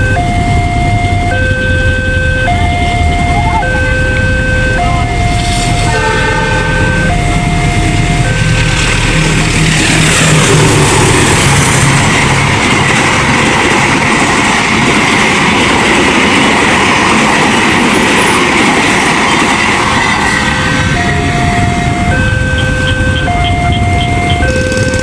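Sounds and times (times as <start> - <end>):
crossing electronic warning tones: 0.0 - 25.0
train wheels clattering on rails: 7.9 - 25.0.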